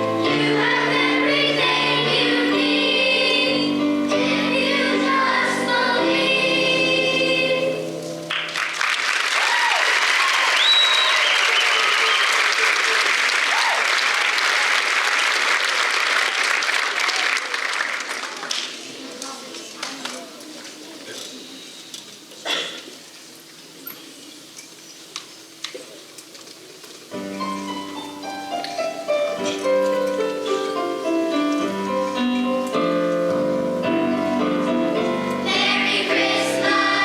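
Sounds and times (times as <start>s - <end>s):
choir singing: 0.0s - 8.2s, 33.5s - 37.0s
audience applause with whoops: 8.3s - 18.5s.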